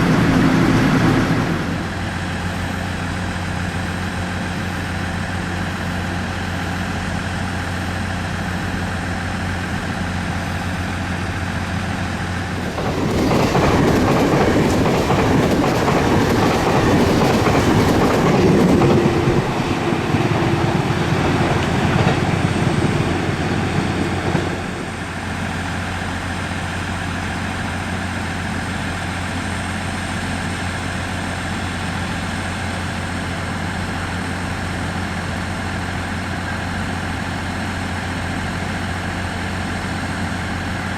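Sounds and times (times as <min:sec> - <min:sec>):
train wheels clattering: 0:12.6 - 0:25.5.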